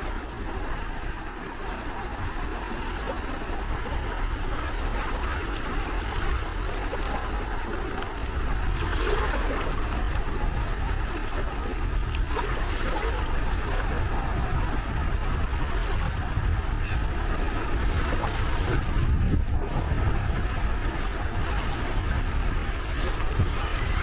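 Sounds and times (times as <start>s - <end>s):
sea waves lapping at shore: 0.0s - 24.0s
low rumble: 20.5s - 24.0s.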